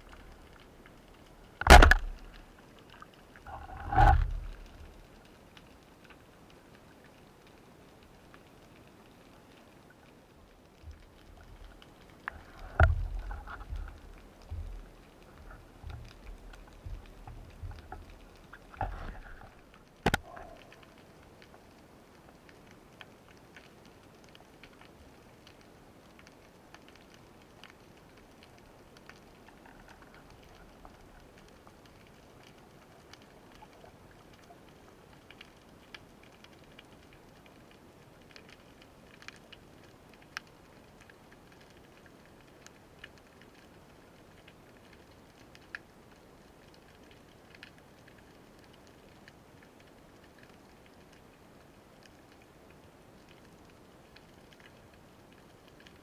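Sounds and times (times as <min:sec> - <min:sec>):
faint underwater hiss: 0:00.0 - 0:10.0, 0:11.6 - 0:22.1
underwater clicks and crackles: 0:00.0 - 0:56.0
sharp loud click: 0:01.6 - 0:02.2
low underwater thuds: 0:01.6 - 0:02.4, 0:12.6 - 0:19.2.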